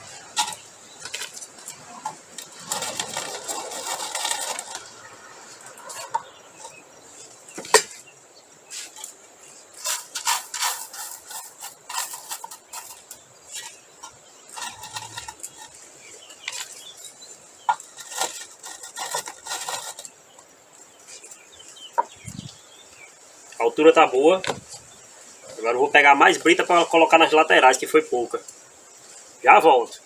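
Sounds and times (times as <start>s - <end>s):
crushed stone clattering: 0.0s - 6.8s.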